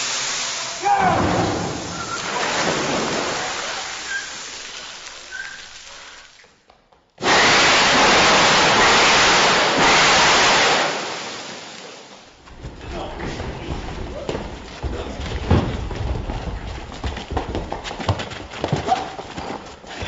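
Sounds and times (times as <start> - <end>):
rushing rain-like noise: 0.0 - 6.4, 7.2 - 12.3.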